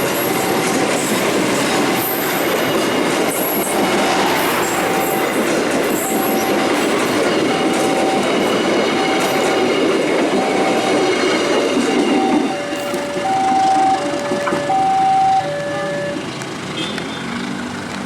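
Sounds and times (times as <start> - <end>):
passenger train rumbling on rails: 0.0 - 18.0
electronic warning tone beeping: 4.5 - 16.3.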